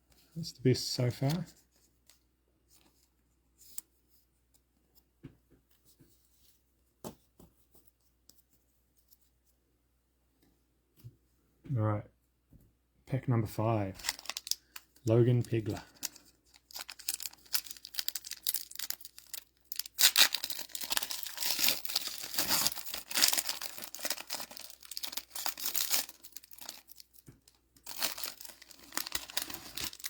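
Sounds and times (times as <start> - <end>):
plastic wrapper tearing and rustling: 14.0 - 30.0.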